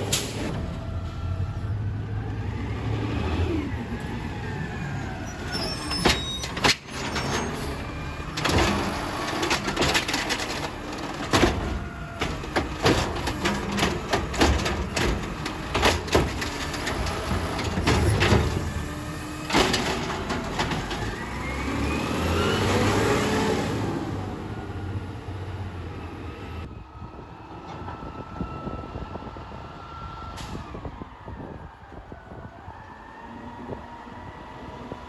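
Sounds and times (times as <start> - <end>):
garbage truck engine running: 3.6 - 25.9
clanks and knocks from truck lift: 8.4 - 18.8.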